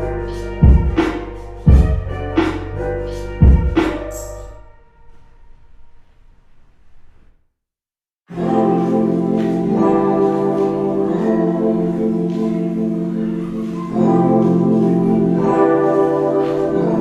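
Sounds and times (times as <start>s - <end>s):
held keyboard chords: 0.0s - 4.6s, 8.3s - 17.0s
lo-fi hip hop instrumental: 0.0s - 4.6s, 8.3s - 17.0s.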